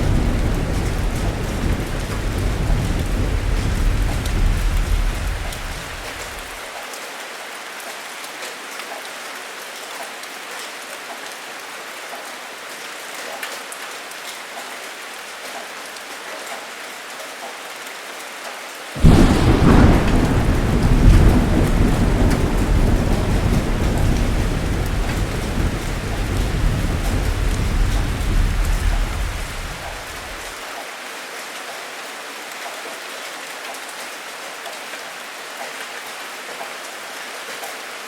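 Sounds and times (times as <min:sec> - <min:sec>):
loud peal of thunder: 0:00.0 - 0:06.6, 0:19.0 - 0:30.5
thunder rumbling: 0:00.0 - 0:06.6, 0:19.0 - 0:30.5
heavy rain hissing: 0:00.0 - 0:06.7, 0:18.9 - 0:30.7.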